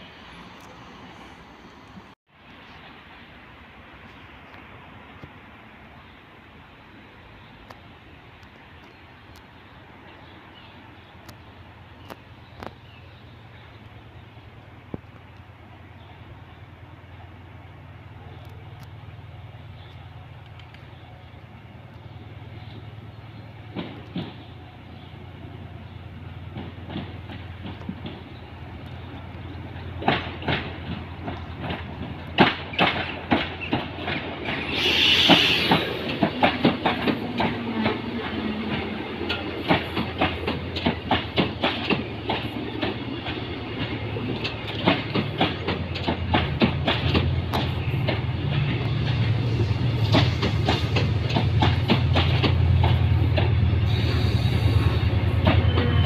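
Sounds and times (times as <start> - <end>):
diesel locomotive engine rumble: 0.0 - 56.0
train wheels clickety-clack: 23.6 - 24.7, 26.3 - 56.0
short hiss: 34.6 - 36.0, 53.8 - 55.0.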